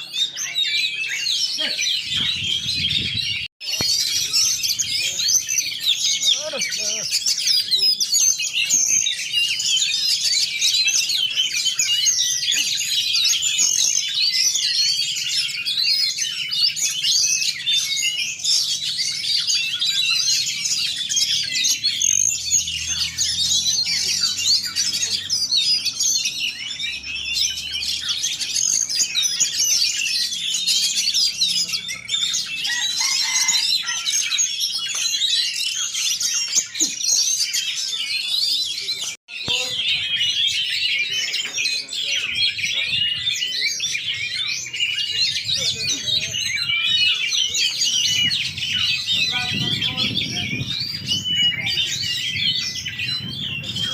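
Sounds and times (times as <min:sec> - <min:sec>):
caged songbirds singing: 0:00.0 - 0:53.9.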